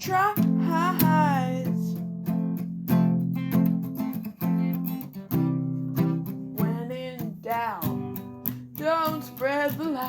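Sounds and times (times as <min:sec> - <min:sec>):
person singing: 0:00.0 - 0:02.0, 0:06.5 - 0:08.1, 0:08.8 - 0:10.0
acoustic guitar strumming: 0:00.0 - 0:10.0.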